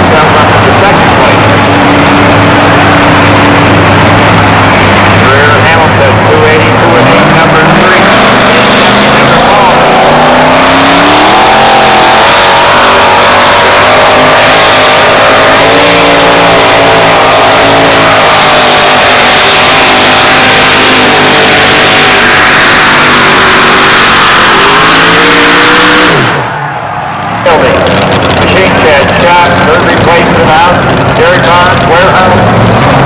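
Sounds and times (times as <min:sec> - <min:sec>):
truck engine at full throttle: 0:00.0 - 0:33.0.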